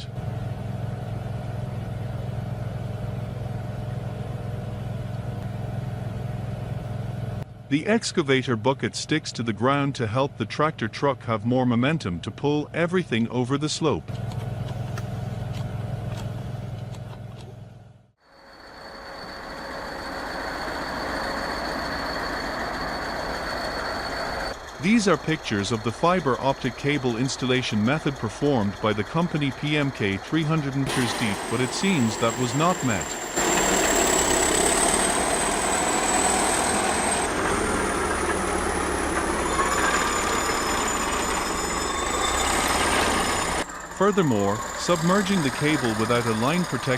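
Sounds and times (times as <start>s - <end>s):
diesel engine running under load: 0.0s - 46.9s
machine rushing with high whine: 18.2s - 46.9s.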